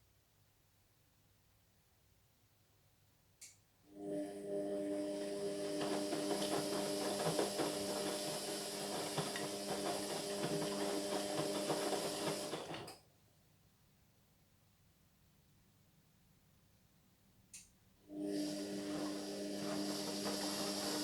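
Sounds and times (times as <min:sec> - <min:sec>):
washing machine drain pump humming: 0:04.0 - 0:13.0, 0:18.1 - 0:21.0.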